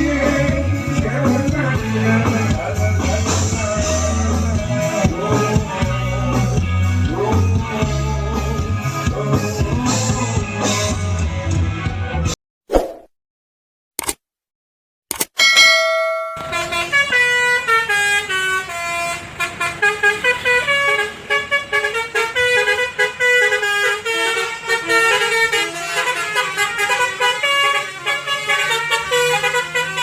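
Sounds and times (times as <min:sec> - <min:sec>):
brassy horn-like melody: 0:00.0 - 0:11.0, 0:16.2 - 0:30.0
steady bass: 0:00.0 - 0:12.3.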